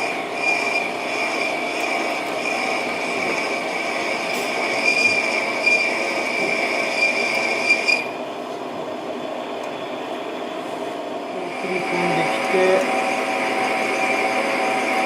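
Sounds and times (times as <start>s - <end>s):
parting tool squealing: 0.0s - 8.2s
lathe running: 0.0s - 15.0s.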